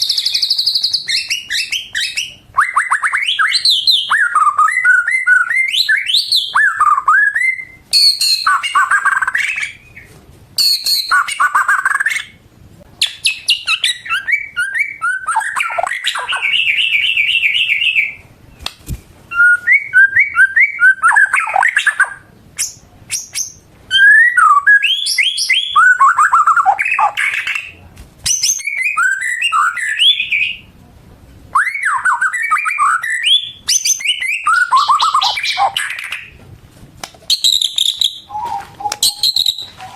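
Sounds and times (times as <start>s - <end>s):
bird singing whistled song: 0.0s - 12.4s, 13.0s - 18.7s, 19.3s - 30.7s, 31.6s - 36.3s, 37.3s - 39.9s.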